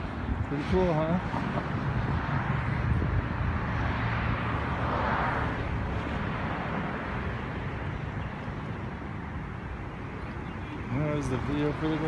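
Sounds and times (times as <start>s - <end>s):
road traffic rumble: 0.0s - 12.0s
car passing by: 0.6s - 8.7s.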